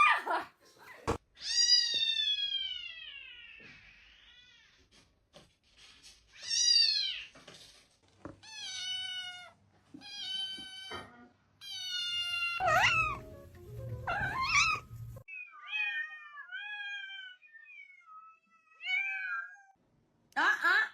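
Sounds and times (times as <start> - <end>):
cat meowing: 8.4 - 13.3, 14.1 - 19.8.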